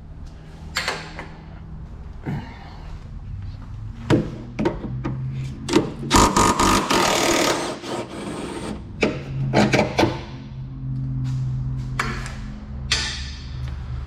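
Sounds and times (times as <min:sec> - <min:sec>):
rapid ratchet clicking and rasping: 0:06.1 - 0:07.8.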